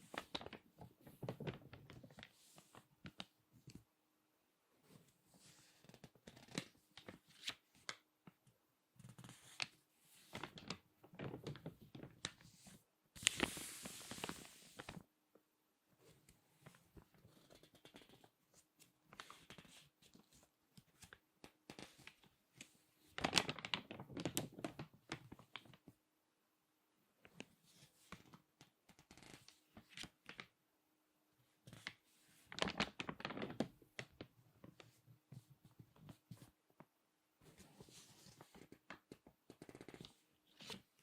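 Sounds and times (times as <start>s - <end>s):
magazine pages crinkling: 23.2s - 25.7s, 31.7s - 34.3s.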